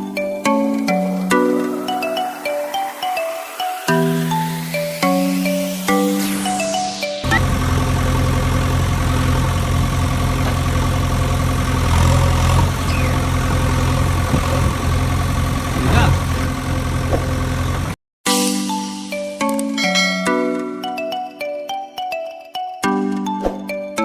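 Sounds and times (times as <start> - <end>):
tractor engine idling: 7.2 - 18.0.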